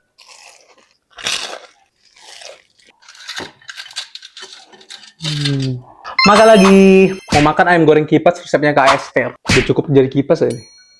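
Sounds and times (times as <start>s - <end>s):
crunching fried chicken: 0.0s - 5.6s.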